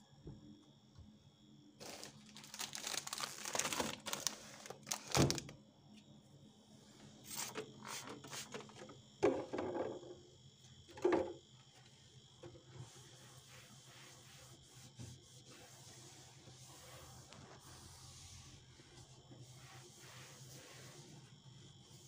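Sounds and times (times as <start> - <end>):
packaging crinkling and rustling: 1.8 - 5.5.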